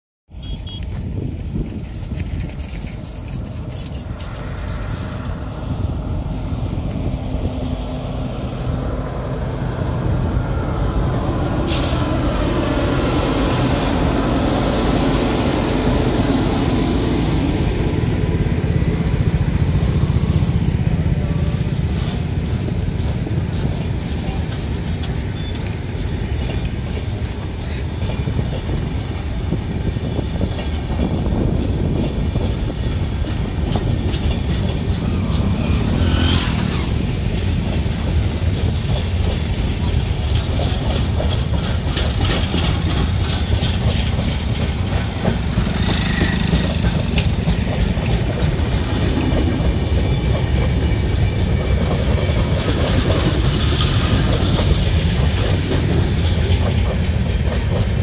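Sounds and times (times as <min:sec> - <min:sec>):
train rumbling over bridge: 0:00.3 - 0:58.0
motorcycles passing: 0:03.0 - 0:26.1, 0:32.8 - 0:38.6, 0:43.6 - 0:57.4.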